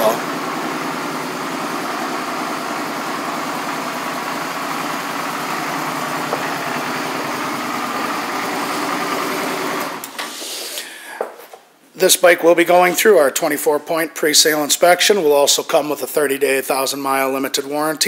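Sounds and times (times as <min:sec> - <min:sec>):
motorcycle engine idling: 0:00.0 - 0:09.7.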